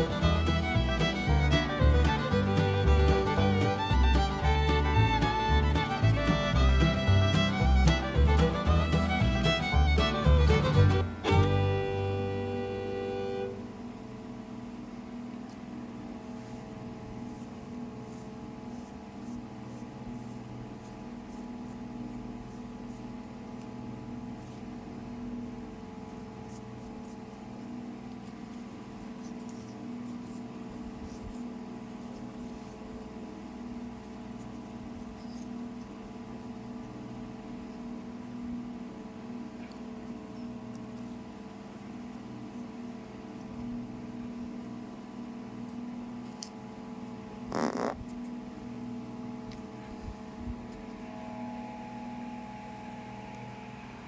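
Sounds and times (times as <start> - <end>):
small electric motor humming: 50.8 - 54.0.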